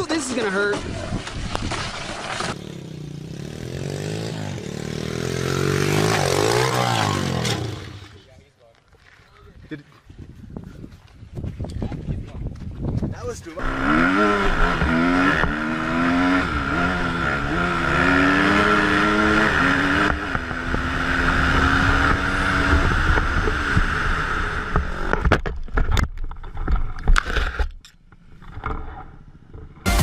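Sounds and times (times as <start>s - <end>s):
dirt bike engine revving: 2.3s - 8.2s, 13.6s - 25.2s
sharp knocks and scraping: 24.7s - 29.9s.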